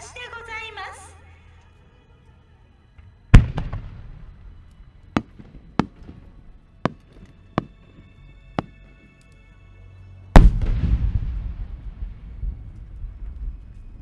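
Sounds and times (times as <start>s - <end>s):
long crackle and echo: 0.9s - 14.0s
firework shell bang: 5.2s - 8.9s, 10.4s - 12.1s.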